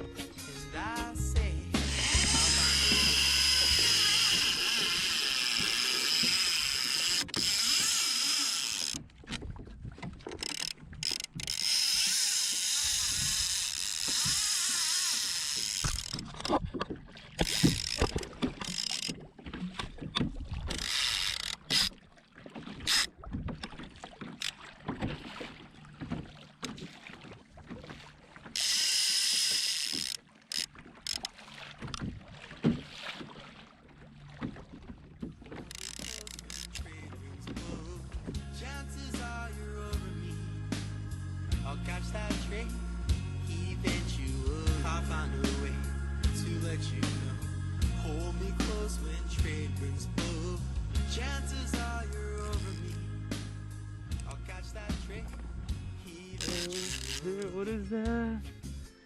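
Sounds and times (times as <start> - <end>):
fishing reel ratchet clicking: 1.8 - 9.0, 10.2 - 16.3, 17.4 - 19.2, 20.7 - 21.9, 22.9 - 23.1, 28.6 - 32.0, 35.7 - 36.9, 56.4 - 57.5.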